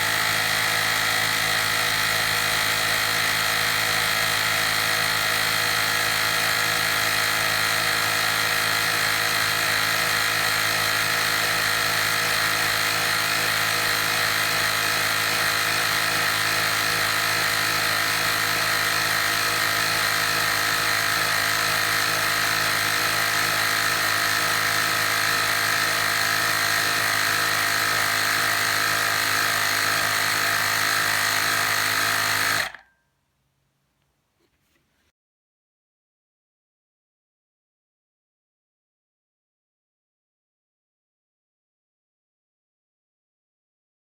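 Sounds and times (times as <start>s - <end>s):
electric compressor whining: 8.5s - 32.8s.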